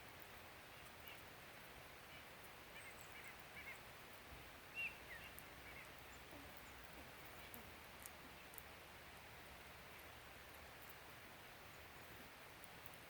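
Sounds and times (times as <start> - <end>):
small birds chirping: 0.0 - 13.0
faint ticks: 5.2 - 8.7.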